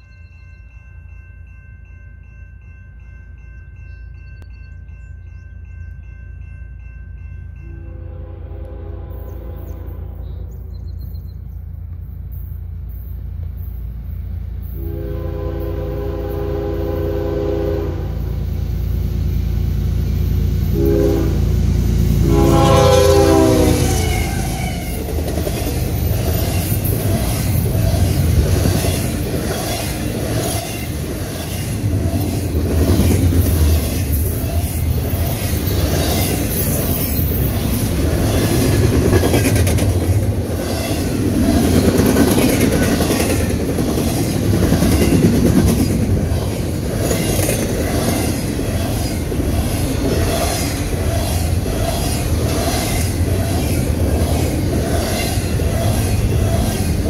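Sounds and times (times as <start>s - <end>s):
freight train rumbling: 0.0s - 57.0s
locomotive horn: 7.6s - 10.5s, 14.8s - 18.4s, 20.6s - 25.0s
wheels clacking on rails: 10.9s - 57.0s.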